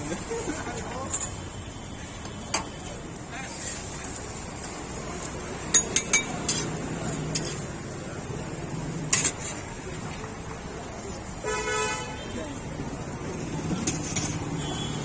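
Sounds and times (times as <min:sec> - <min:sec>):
background chatter: 0:00.0 - 0:15.0
street noise: 0:00.0 - 0:15.0
metal utensils clinking: 0:05.7 - 0:07.7, 0:09.1 - 0:09.6.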